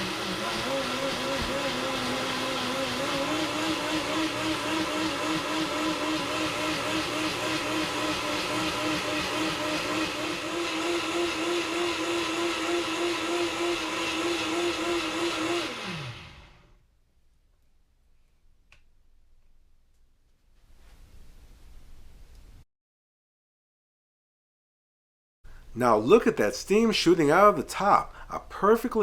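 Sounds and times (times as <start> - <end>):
blender motor whining: 0.0 - 16.8.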